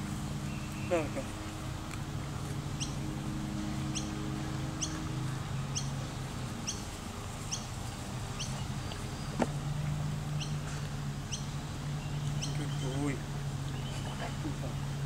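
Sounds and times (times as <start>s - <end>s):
bird chirping: 0.4s - 1.5s, 2.7s - 3.1s, 3.8s - 9.6s, 10.3s - 15.0s.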